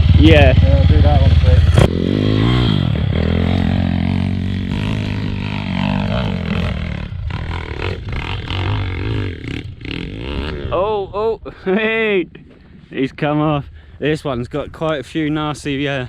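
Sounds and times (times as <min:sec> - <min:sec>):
motorbike engine revving: 0:00.0 - 0:10.8.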